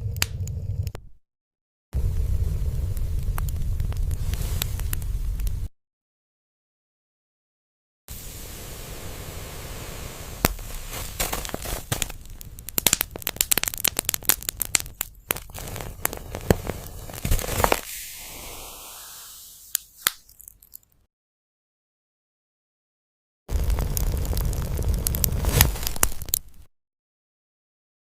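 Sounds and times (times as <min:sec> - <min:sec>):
firewood crackling and popping: 0:00.0 - 0:01.0, 0:02.0 - 0:05.7, 0:08.4 - 0:18.8, 0:19.7 - 0:21.0, 0:23.5 - 0:26.7.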